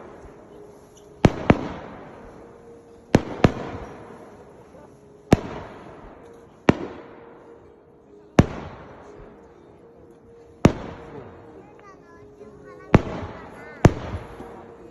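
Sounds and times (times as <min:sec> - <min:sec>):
fireworks bangs: 0:00.0 - 0:04.6, 0:05.3 - 0:07.3.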